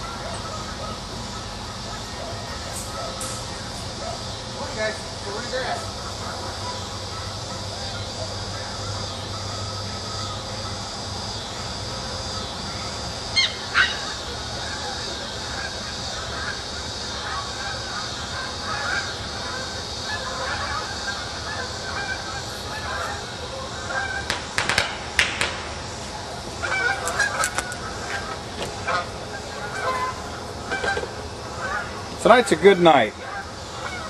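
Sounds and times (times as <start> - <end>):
geese honking: 0.0 - 34.0
fireworks popping: 24.2 - 26.1.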